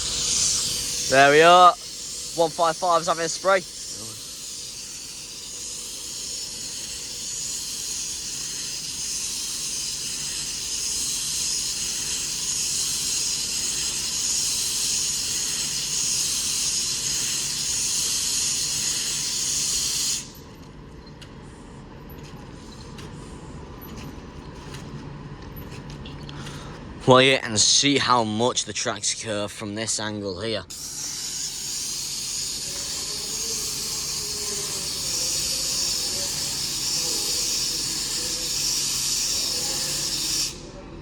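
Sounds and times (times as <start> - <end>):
train hissing spray: 0.0 - 20.4, 30.7 - 40.8.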